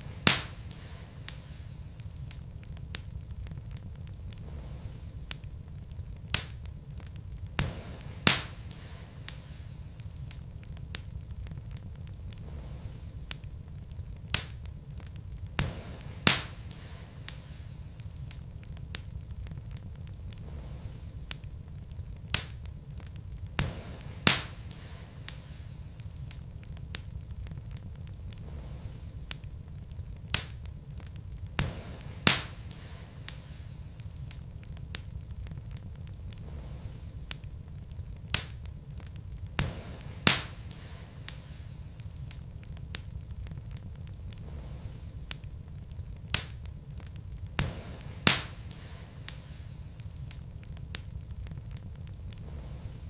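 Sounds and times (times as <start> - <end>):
fire snapping and popping: 0.0 - 53.0
low rumble of flames: 0.0 - 53.0.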